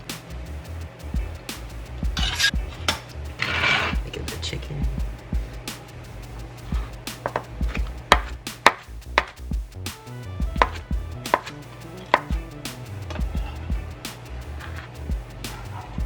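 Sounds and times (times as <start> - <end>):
knife knocking on cutting surface: 10.6 - 11.5.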